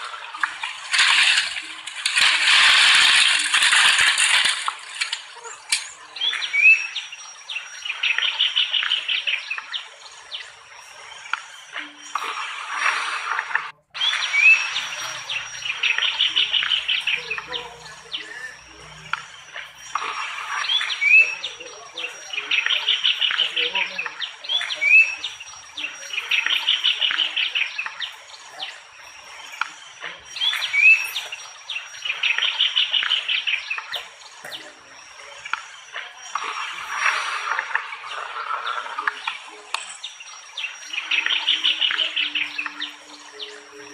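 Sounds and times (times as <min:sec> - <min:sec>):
bird singing chattering phrases: 0:13.8 - 0:43.9.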